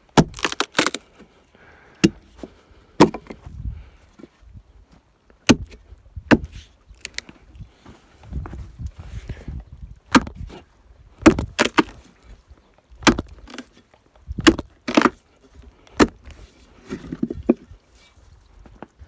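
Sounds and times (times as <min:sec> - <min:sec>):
hand tool striking wood: 0:03.0 - 0:03.4, 0:05.5 - 0:07.2, 0:11.2 - 0:11.9, 0:13.0 - 0:13.3, 0:16.0 - 0:16.2.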